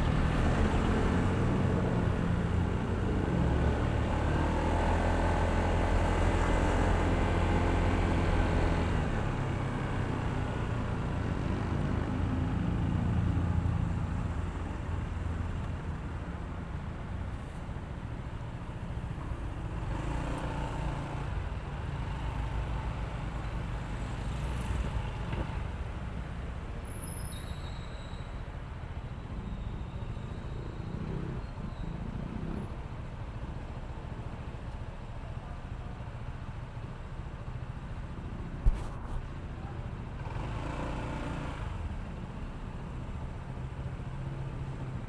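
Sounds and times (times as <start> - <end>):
wind and road noise: 0.0 - 45.0
sharp thump: 38.6 - 39.2.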